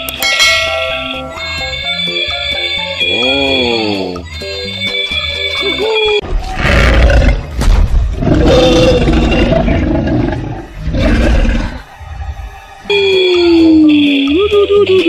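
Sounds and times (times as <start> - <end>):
dinosaur roars: 6.6 - 7.5, 8.2 - 11.9.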